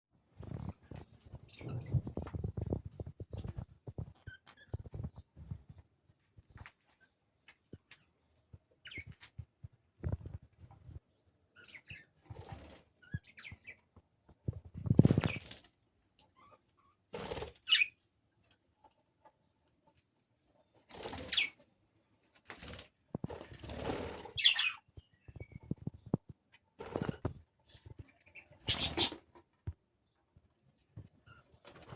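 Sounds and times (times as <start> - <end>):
bird wings flapping and scrabbling: 0.3 - 5.8, 14.3 - 15.8, 17.1 - 17.8, 20.7 - 21.6, 22.3 - 29.8, 31.0 - 31.9
shrill bird chirps: 17.6 - 18.0.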